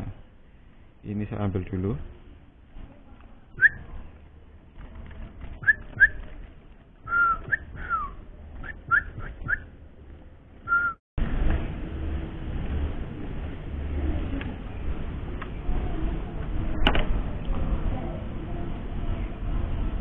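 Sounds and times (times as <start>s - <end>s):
steady low noise: 0.0s - 20.0s
cage bird chirping: 7.0s - 9.8s.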